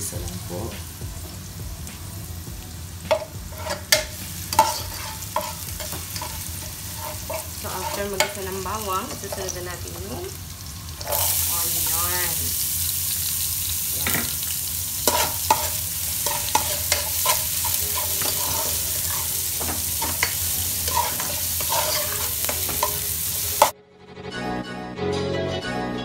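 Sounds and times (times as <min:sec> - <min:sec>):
onion sizzling in hot oil: 0:00.0 - 0:23.7
metal ladle scraping a pan: 0:03.1 - 0:09.6, 0:10.9 - 0:11.5, 0:15.0 - 0:23.7.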